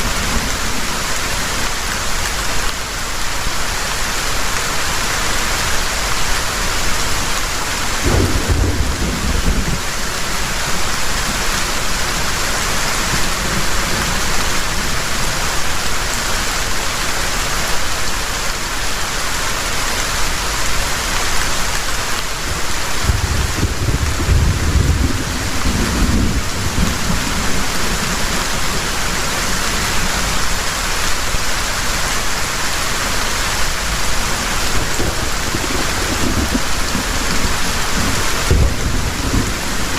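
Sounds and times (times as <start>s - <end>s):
heavy rain pouring: 0.0s - 39.9s
thunder rumbling: 8.0s - 11.5s, 22.5s - 30.3s, 34.3s - 39.9s.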